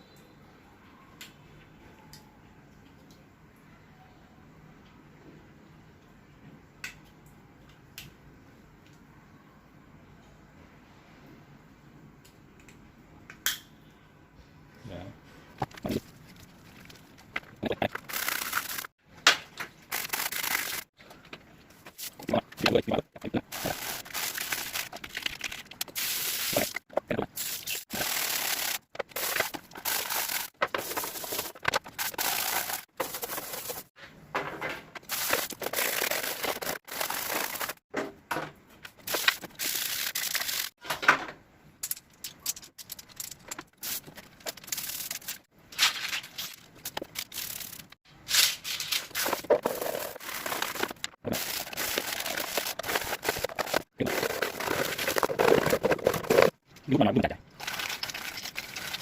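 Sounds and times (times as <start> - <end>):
plastic parts scraping and crackling: 15.6 - 37.9, 41.9 - 56.9, 57.6 - 59.0.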